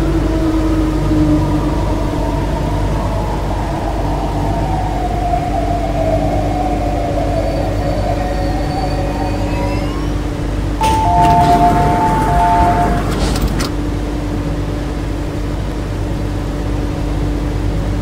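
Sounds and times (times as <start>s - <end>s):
train rumble: 0.0s - 18.0s
train motors whining: 6.4s - 14.3s
two-tone electronic chime: 10.8s - 13.6s
clicks: 10.8s - 13.8s.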